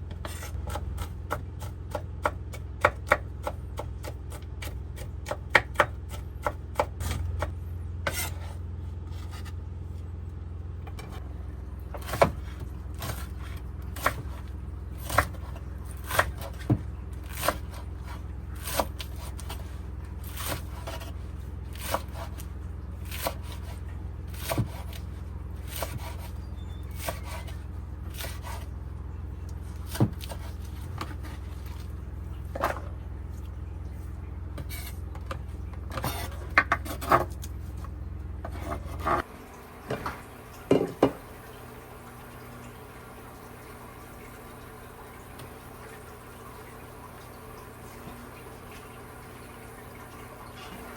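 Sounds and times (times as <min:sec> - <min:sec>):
steady low hum: 0:00.0 - 0:50.9
knife chopping on cutting board: 0:00.1 - 0:09.6, 0:11.9 - 0:13.4, 0:23.1 - 0:25.0, 0:25.7 - 0:26.3, 0:27.0 - 0:28.7, 0:29.8 - 0:31.4.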